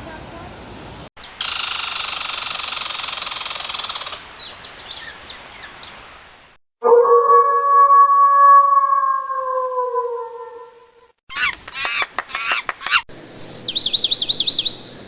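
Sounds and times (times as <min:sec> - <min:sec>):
bird buzzy trill: 0:01.2 - 0:05.7.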